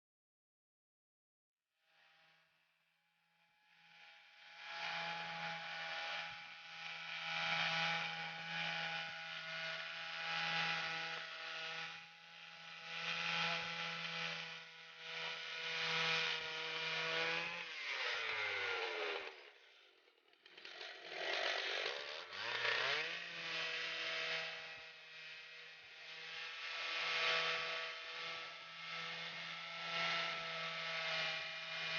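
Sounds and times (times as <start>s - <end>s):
chainsaw engine running: 4.0s - 31.9s.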